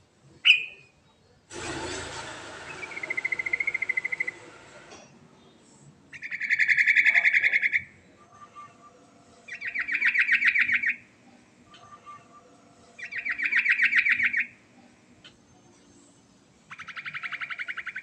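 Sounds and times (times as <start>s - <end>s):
hiss: 1.5s - 5.1s
bird rattling trills: 2.6s - 4.4s.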